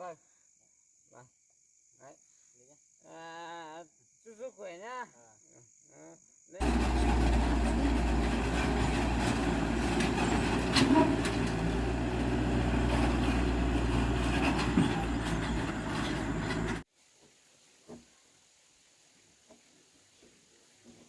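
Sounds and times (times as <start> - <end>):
rattles and clicks: 6.6 - 16.8
vehicle engine and road noise: 6.6 - 16.9.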